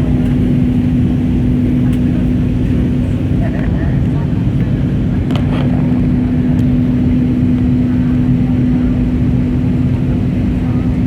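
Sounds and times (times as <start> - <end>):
aircraft cabin engine rumble: 0.0 - 11.0
constant low hum: 0.0 - 11.0.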